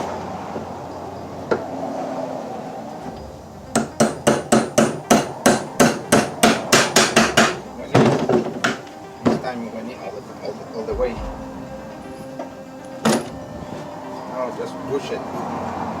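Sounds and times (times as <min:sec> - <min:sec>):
hammer striking rapidly: 0:03.7 - 0:09.4.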